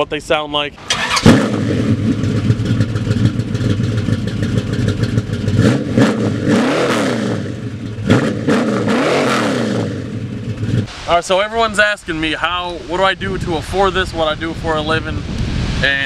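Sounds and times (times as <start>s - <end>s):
car engine revving and idling: 0.8s - 10.9s.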